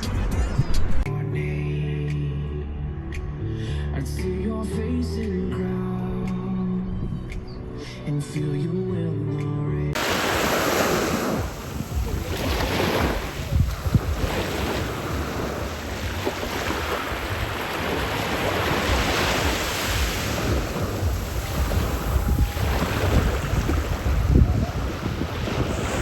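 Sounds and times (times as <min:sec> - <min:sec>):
ocean surf breaking: 0:10.0 - 0:26.0
wind rumbling on microphone: 0:10.0 - 0:26.0.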